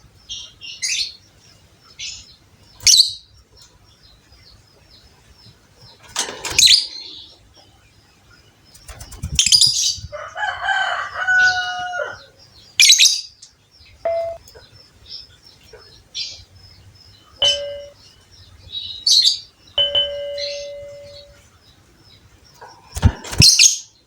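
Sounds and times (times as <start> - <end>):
lovebirds chirping: 0.0 - 24.0
wing flapping: 8.7 - 9.7, 22.8 - 23.7.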